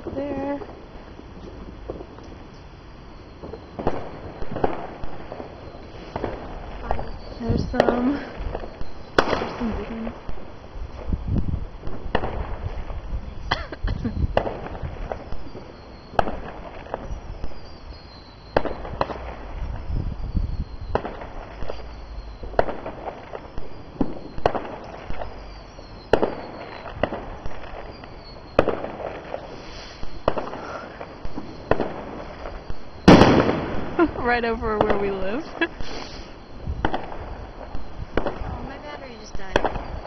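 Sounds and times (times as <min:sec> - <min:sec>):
fireworks bangs: 0:00.0 - 0:40.0.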